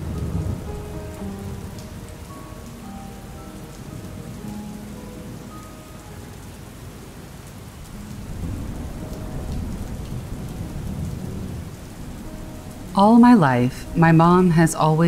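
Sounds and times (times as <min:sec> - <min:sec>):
low rumble of thunder: 0:00.0 - 0:02.6, 0:07.7 - 0:15.0
steady rain falling: 0:00.0 - 0:15.0.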